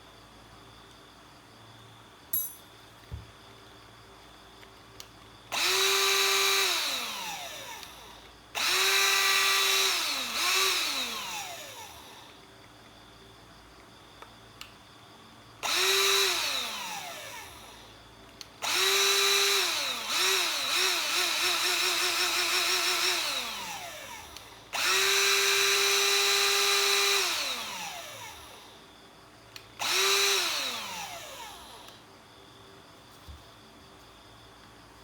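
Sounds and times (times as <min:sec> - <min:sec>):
electric blower motor whine: 0:05.5 - 0:12.4, 0:15.6 - 0:17.9, 0:18.6 - 0:28.8, 0:29.8 - 0:32.0.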